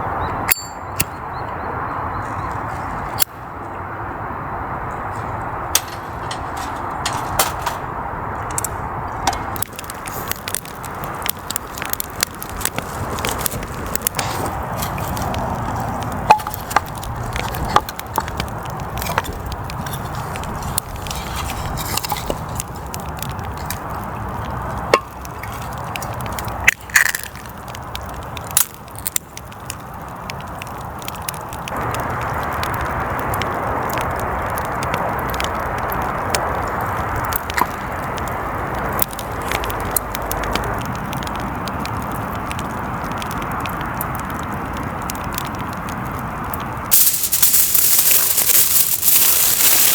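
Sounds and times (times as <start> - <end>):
wood fire crackling: 2.2 - 49.9
steady hiss: 46.8 - 49.9.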